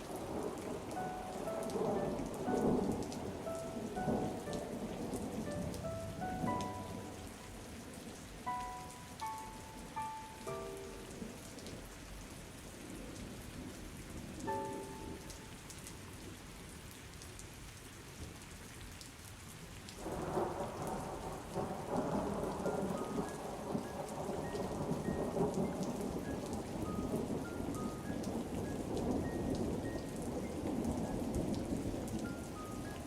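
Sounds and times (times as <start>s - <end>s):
steady rain: 0.0s - 33.0s
thunder rumble: 0.1s - 7.8s, 20.0s - 32.8s
soft musical notes: 0.7s - 12.2s, 14.5s - 15.8s, 22.6s - 31.4s, 32.2s - 33.0s.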